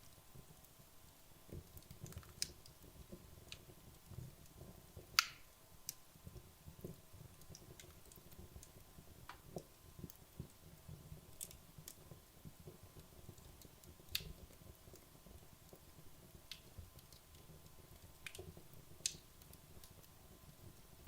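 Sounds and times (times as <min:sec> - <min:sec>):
fire crackling: 0:00.0 - 0:21.0
soft low rumble of fire: 0:00.0 - 0:21.0
sharp pops of burning logs: 0:01.5 - 0:06.1, 0:11.3 - 0:20.2.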